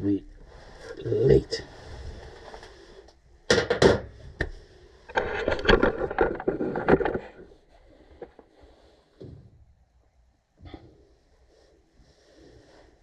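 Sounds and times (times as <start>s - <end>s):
metal parts clattering and scraping: 5.1s - 7.5s.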